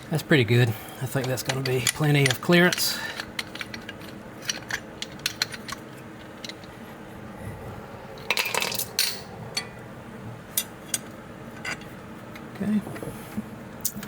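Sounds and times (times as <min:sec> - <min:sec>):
metal tools clinking: 0:01.0 - 0:06.8, 0:08.2 - 0:09.8
metallic rattle and scrape: 0:01.1 - 0:07.1, 0:08.2 - 0:09.8.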